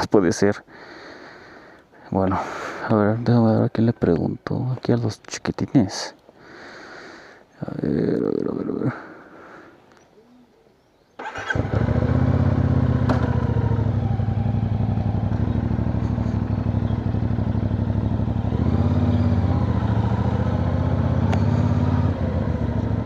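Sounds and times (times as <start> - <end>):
motorcycle engine running: 11.3 - 23.0.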